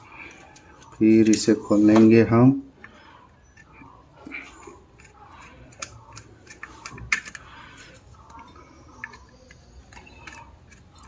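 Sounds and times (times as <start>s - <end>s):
metal fan parts clicking: 2.8s - 11.0s.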